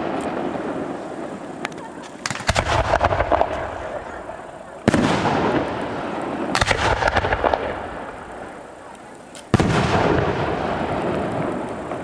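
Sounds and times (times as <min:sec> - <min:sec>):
fireworks crackling bangs: 0:00.0 - 0:12.0
firework shell burst: 0:02.1 - 0:04.2
long rumbling echo: 0:02.2 - 0:08.8, 0:09.5 - 0:12.0.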